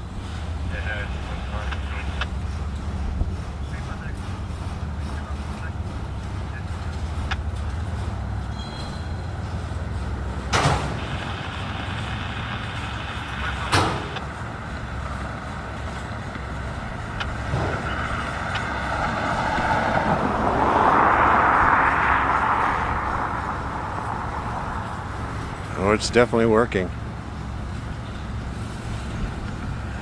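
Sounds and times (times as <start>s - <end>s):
freight train rolling past: 0.0s - 30.0s
sharp clanks: 1.5s - 20.8s.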